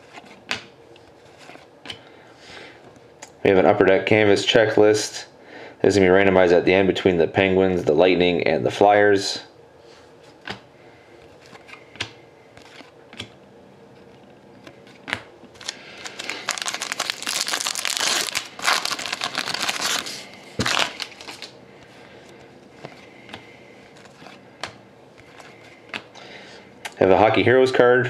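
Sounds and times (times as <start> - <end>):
foil wrapper crinkling: 15.6 - 21.6.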